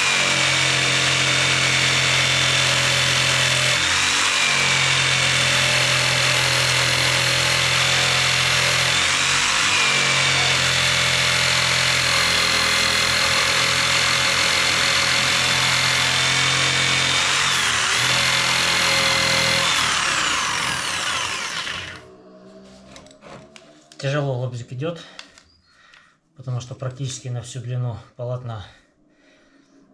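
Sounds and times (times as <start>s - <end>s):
electric jigsaw cutting log: 0.0s - 22.1s.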